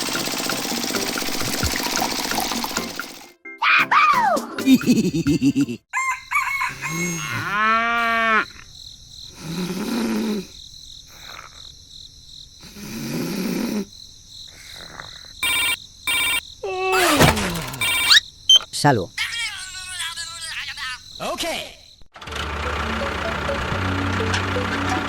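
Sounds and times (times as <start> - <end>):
chicken calls: 5.9 - 8.4, 17.0 - 21.2
rooster crowing: 5.9 - 8.4
short pitched tones: 15.4 - 16.4, 17.0 - 18.7.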